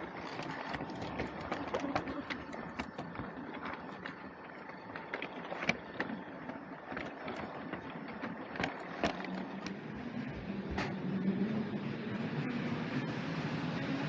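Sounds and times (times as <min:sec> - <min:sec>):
wheels clicking on plastic track: 0:00.0 - 0:11.0
toy train motor hum: 0:00.0 - 0:14.0.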